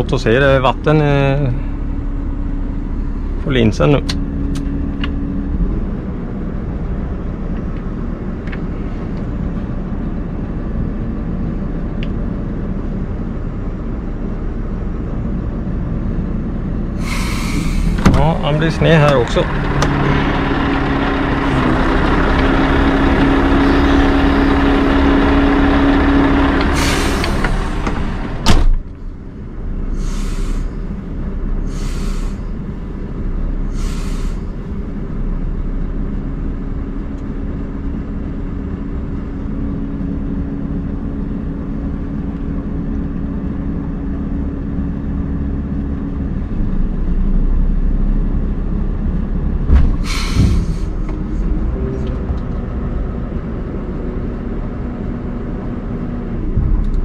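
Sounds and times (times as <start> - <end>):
truck diesel engine droning: 0.0 - 57.0
short air hisses: 17.0 - 18.0, 26.7 - 27.4, 30.0 - 30.8, 31.7 - 32.5, 33.7 - 34.5, 50.0 - 51.0.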